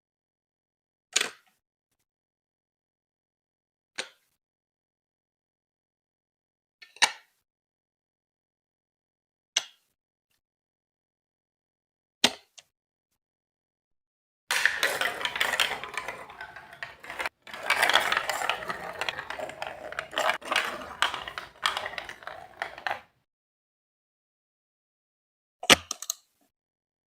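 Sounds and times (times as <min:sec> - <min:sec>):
marbles rattling down plastic track: 0:14.5 - 0:23.1.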